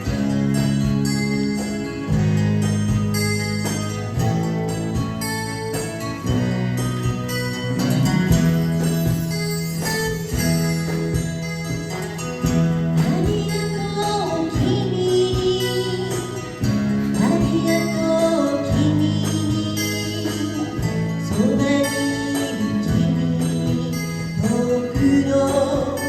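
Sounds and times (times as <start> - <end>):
acoustic guitar: 0.0 - 26.0
person singing: 13.0 - 26.0.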